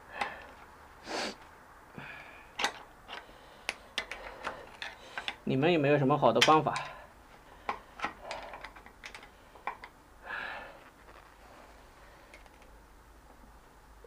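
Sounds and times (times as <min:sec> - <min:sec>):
scraping rustle: 0:10.7 - 0:11.9.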